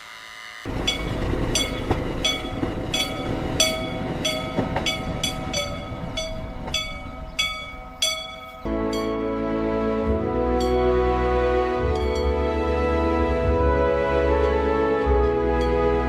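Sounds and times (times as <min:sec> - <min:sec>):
ringing metallic strikes: 0:00.7 - 0:09.3, 0:11.8 - 0:12.6
steady low rumble: 0:00.7 - 0:14.0.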